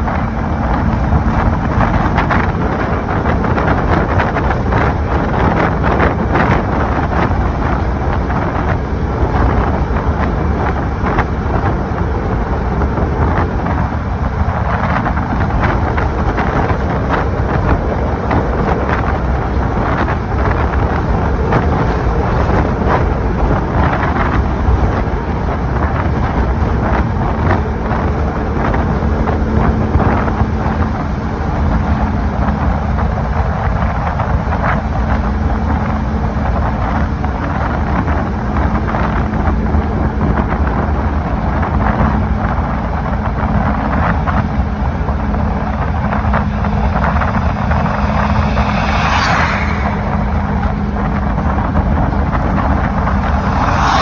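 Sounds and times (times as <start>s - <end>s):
wind buffeting microphone: 0.0s - 54.0s
steady low hum: 43.7s - 54.0s.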